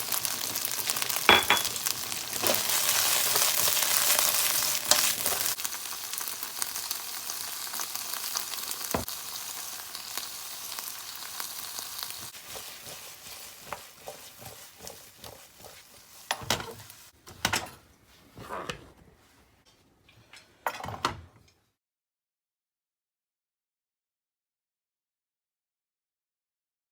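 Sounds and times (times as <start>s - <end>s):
food sizzling in a pan: 0.0s - 17.2s
utensil scraping a pan: 12.1s - 20.4s.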